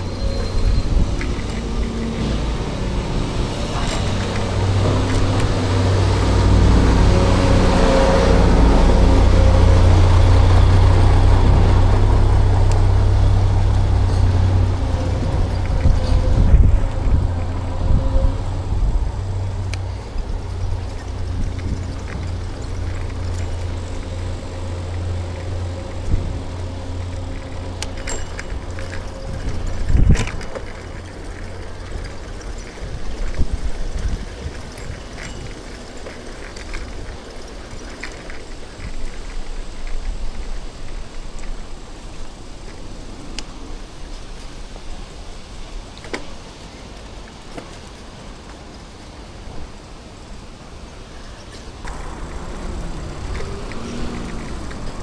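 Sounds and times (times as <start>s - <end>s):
bicycle rattles and knocks: 0.0s - 55.0s
passing motor traffic: 0.0s - 55.0s
wind and tyres on road: 0.0s - 55.0s
rising and falling whine: 51.8s - 55.0s.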